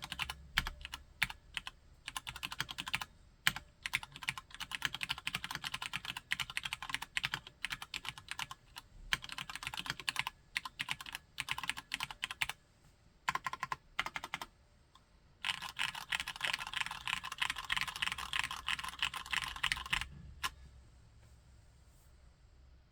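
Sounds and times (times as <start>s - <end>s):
mechanical keyboard typing: 0.0s - 12.6s, 13.3s - 14.5s, 15.4s - 20.6s.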